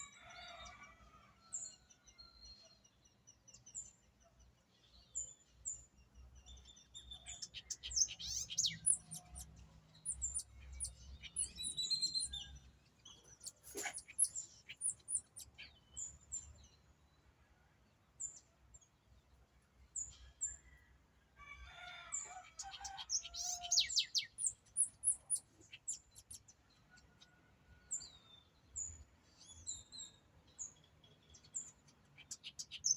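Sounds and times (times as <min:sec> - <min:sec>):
wild birds chirping and singing: 0:00.0 - 0:32.9.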